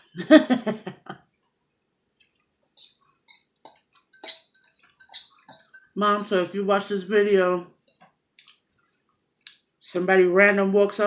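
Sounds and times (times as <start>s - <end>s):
chewing: 2.2s - 6.0s, 7.8s - 9.7s
person speaking: 2.8s - 8.6s
utensil clinking in bowl: 3.6s - 6.5s.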